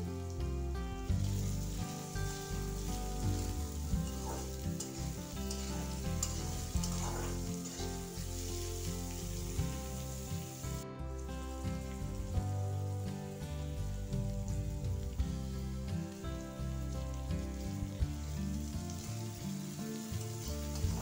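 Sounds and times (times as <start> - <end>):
background music: 0.0 - 21.0
tomatoes sizzling in oil: 0.0 - 21.0
spatula scraping pan: 2.6 - 10.1.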